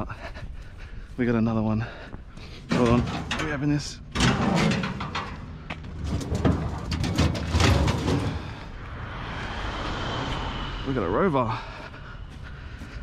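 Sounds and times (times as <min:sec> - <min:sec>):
steady rustling: 0:02.2 - 0:09.6, 0:11.5 - 0:13.0
lawnmower knocking and rattling: 0:02.6 - 0:08.5.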